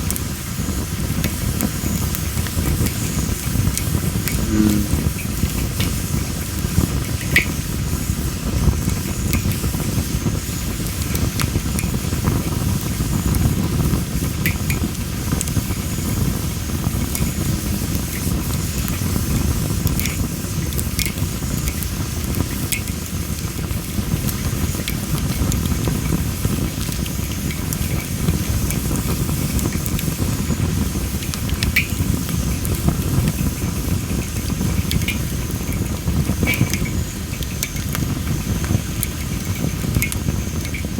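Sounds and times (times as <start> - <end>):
fire crackling and popping: 0.0 - 40.9
low rush of flame: 0.1 - 6.9.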